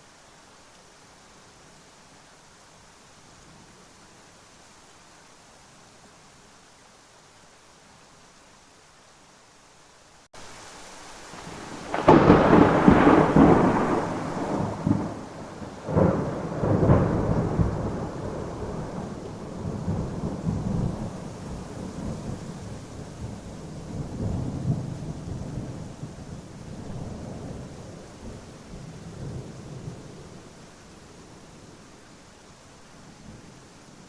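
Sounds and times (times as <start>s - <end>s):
steady rain: 0.0s - 34.0s
thunderclaps: 11.4s - 22.3s
rumbling thunder: 11.4s - 30.4s.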